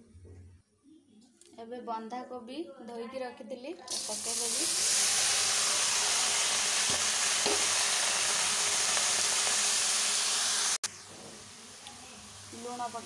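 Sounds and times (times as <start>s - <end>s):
cabbage sizzling in hot oil: 3.9s - 13.0s.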